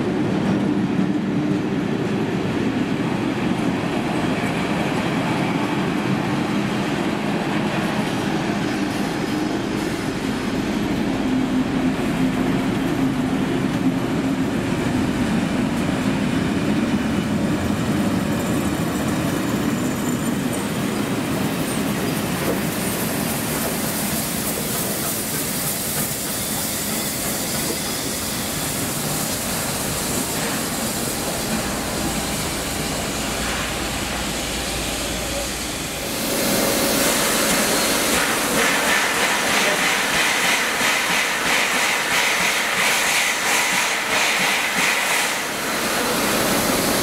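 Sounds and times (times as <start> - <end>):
train rushing noise: 0.0 - 47.0.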